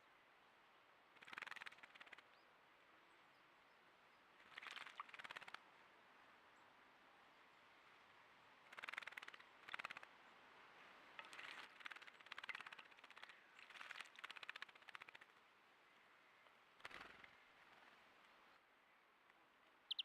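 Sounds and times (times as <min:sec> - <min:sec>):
bird fluttering splashes in water: 0:01.2 - 0:02.3, 0:04.4 - 0:05.6, 0:08.6 - 0:10.2, 0:11.0 - 0:15.4, 0:16.8 - 0:18.0.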